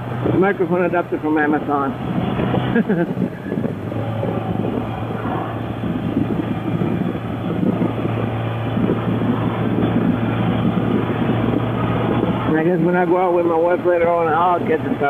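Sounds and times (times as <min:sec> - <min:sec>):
motorcycle engine running: 0:00.0 - 0:14.8
road and wind noise: 0:00.0 - 0:15.0.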